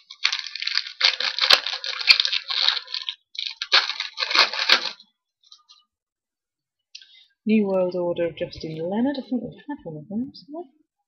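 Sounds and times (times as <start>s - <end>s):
wrapper tearing and crinkling: 0.0s - 5.1s.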